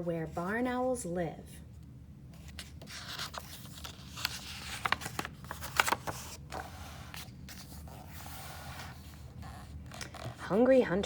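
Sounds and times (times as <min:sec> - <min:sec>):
paper pages rustling and turning: 0:02.4 - 0:10.5
sharp paper crinkles: 0:02.5 - 0:08.1.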